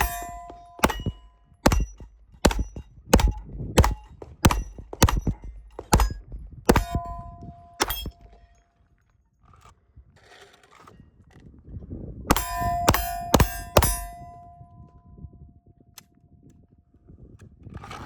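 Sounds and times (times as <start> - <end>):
gunshots: 0.0 - 7.2
steel plate ringing ping: 0.0 - 8.5, 12.3 - 14.9.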